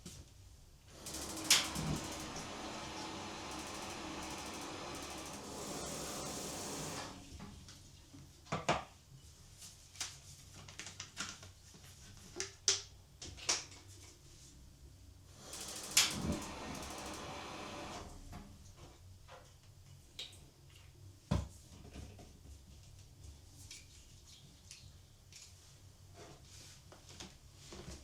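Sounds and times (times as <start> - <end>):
hissing rush: 0.9 - 7.2.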